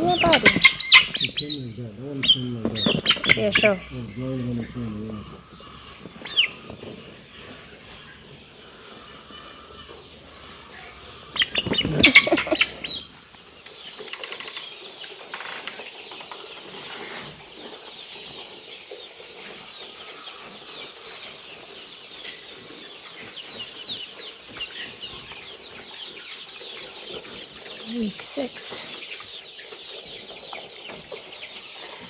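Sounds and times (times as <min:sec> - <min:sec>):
wing flapping: 0:00.0 - 0:14.8
chicks cheeping: 0:00.0 - 0:32.0.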